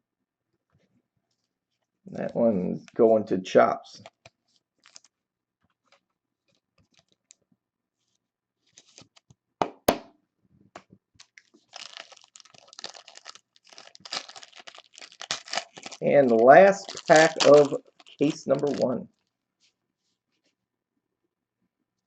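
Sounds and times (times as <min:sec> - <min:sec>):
wrapper crinkling and tearing: 0:04.0 - 0:05.2, 0:08.7 - 0:09.2, 0:11.2 - 0:19.3
cards and plastic clicking: 0:15.2 - 0:19.0.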